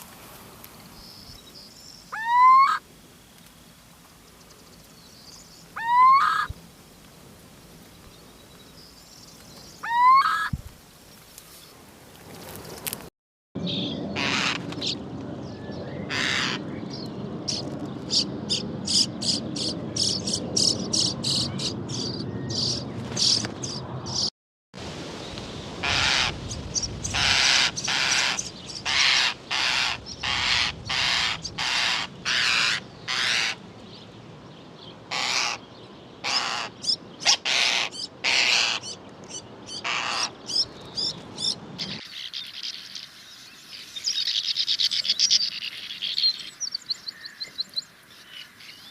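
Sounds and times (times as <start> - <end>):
starling calling: 1.0 - 2.8, 4.5 - 6.5, 8.8 - 10.6, 16.1 - 16.7, 25.8 - 33.6, 35.1 - 48.9
sand martins twittering: 13.6 - 24.3, 25.8 - 48.9.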